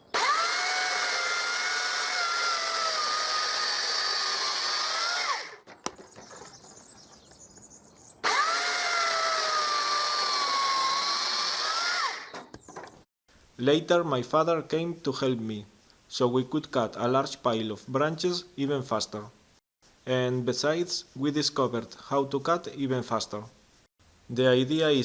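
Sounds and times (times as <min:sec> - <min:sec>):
chainsaw cutting branches: 0:00.0 - 0:05.6, 0:08.2 - 0:12.3.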